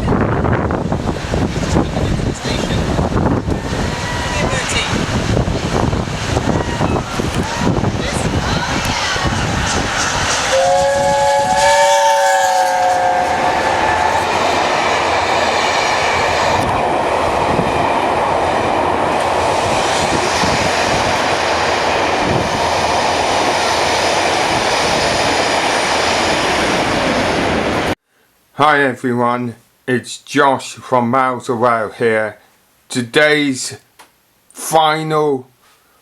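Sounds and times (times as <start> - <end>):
train running on rails: 0.0 - 28.0
train horn chord: 10.5 - 14.6.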